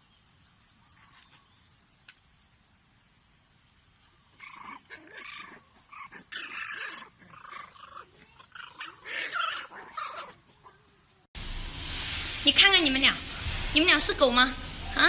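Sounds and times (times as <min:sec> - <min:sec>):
pet animals calling: 0:04.1 - 0:11.0.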